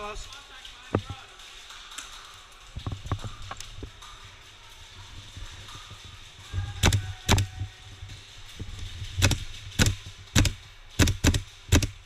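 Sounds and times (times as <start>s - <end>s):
airsoft rifle shots: 9.2s - 12.0s.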